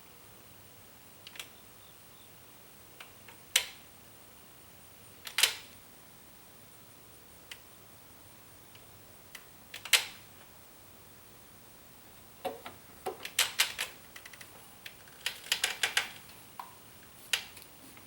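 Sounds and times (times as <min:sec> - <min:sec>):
sharp mechanical clicks: 0:05.2 - 0:05.7, 0:09.3 - 0:10.2, 0:13.1 - 0:16.2.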